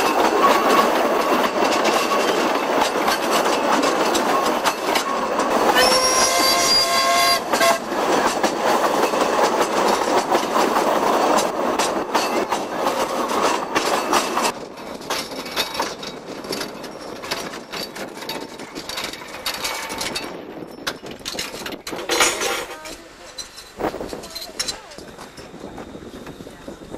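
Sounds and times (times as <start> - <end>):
train wheels clicking on rails: 0.0 - 26.9
train whistle: 5.6 - 7.9.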